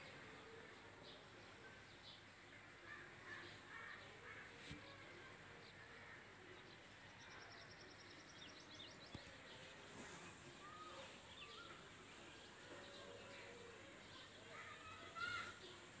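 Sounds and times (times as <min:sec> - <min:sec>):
faint click: 0:09.1 - 0:09.4.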